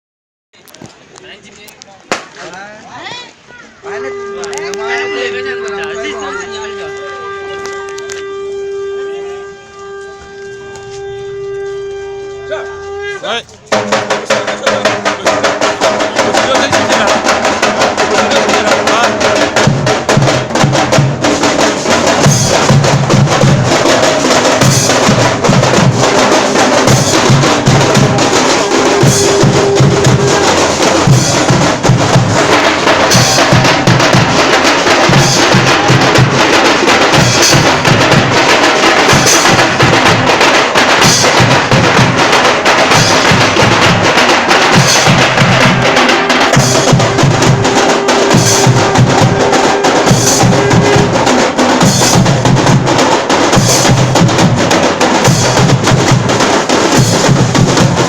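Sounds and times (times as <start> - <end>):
deep bass drum beats: 7.3 - 58.0
fast loud drumming: 12.5 - 58.0.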